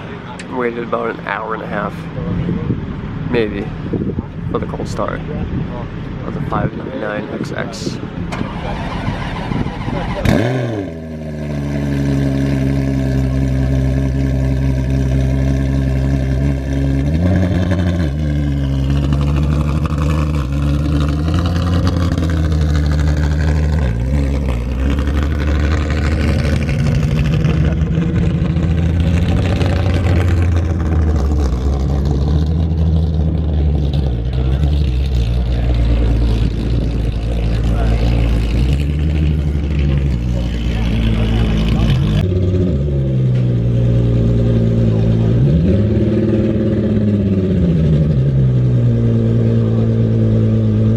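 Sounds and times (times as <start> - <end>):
car engine idling fast: 11.0 - 42.6.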